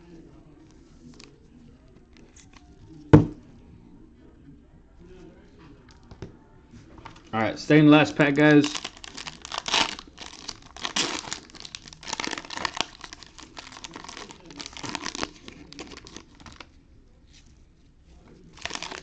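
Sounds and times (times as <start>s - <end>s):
foil wrapper tearing and crinkling: 8.5s - 16.7s, 18.5s - 19.0s.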